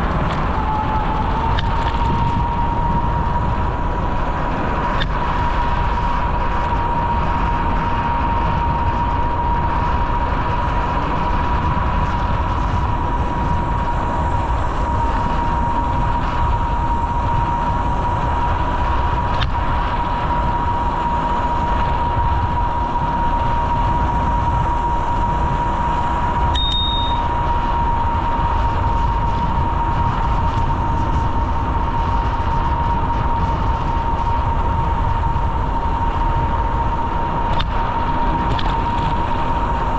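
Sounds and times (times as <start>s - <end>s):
constant high hum: 0.0s - 39.9s
wind and road noise: 0.0s - 39.9s
bicycle bell ding: 26.6s - 27.4s.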